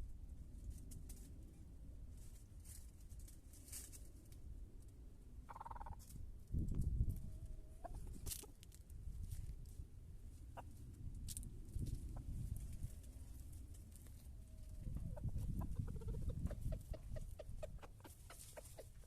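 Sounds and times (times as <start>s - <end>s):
chickens calling: 7.7s - 8.6s, 14.6s - 19.0s.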